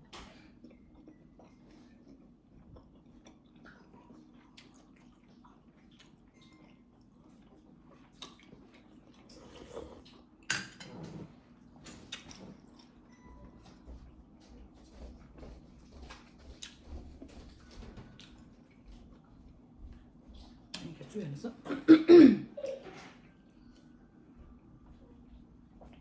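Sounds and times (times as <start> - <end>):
person chewing: 0.4 - 10.2.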